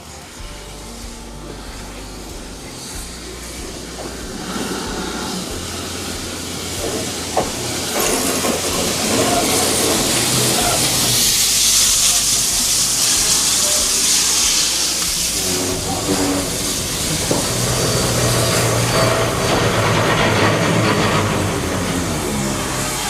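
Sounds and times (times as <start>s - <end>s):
locomotive steam hissing: 0.0s - 23.0s.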